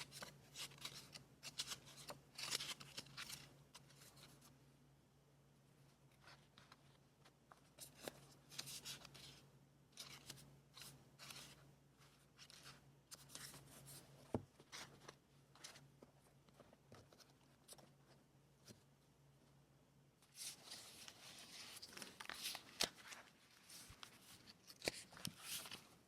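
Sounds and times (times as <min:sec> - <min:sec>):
paper rustling and rubbing: 0:20.3 - 0:26.0.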